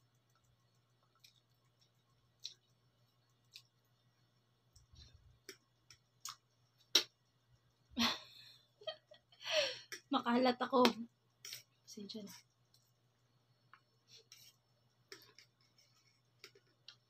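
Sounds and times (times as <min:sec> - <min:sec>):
chewing mouth clicks and smacks: 0:00.2 - 0:04.0
person breathing: 0:09.4 - 0:10.0.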